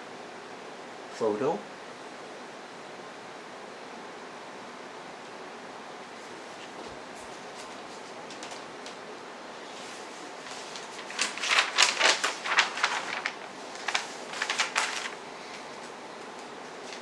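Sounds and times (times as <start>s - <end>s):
book pages turning: 6.6s - 9.0s, 9.6s - 17.0s.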